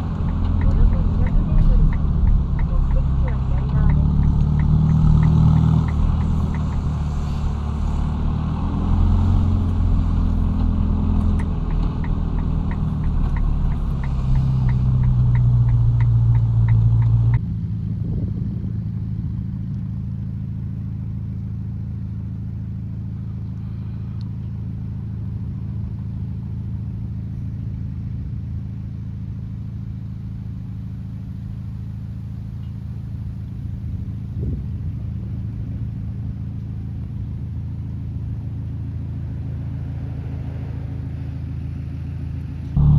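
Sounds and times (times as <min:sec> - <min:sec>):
quick regular ticking: 0:00.0 - 0:17.4
car engine running at low speed: 0:00.0 - 0:42.9.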